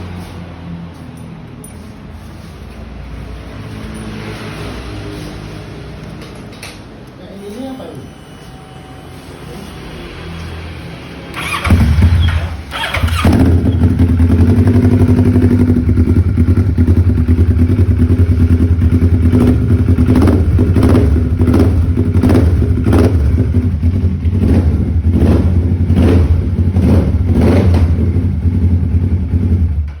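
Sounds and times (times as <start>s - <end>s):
motorcycle engine idling and revving: 0.0s - 6.9s, 8.4s - 30.0s.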